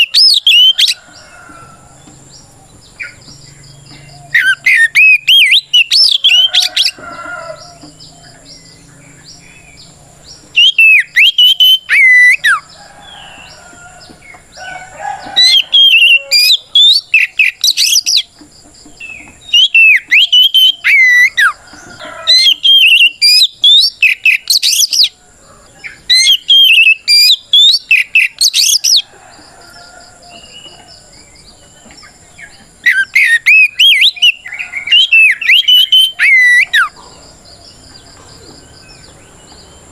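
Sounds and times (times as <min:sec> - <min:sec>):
bird singing sweeping whistles: 0:04.3 - 0:07.0, 0:10.6 - 0:13.2, 0:19.5 - 0:21.6, 0:22.4 - 0:25.1, 0:26.1 - 0:28.9, 0:32.8 - 0:37.0.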